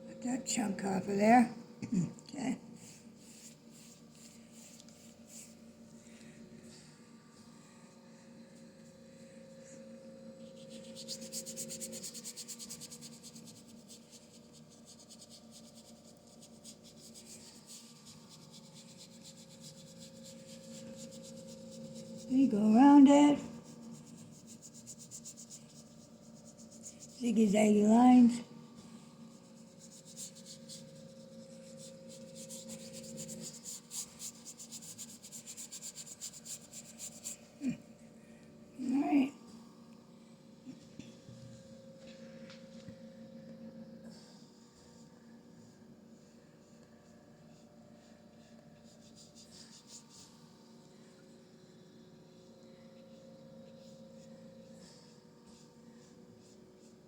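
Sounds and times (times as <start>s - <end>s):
paintbrush scrubbing on canvas: 2.8s - 5.8s, 10.4s - 28.2s, 28.9s - 37.8s, 47.4s - 50.8s, 53.2s - 57.0s.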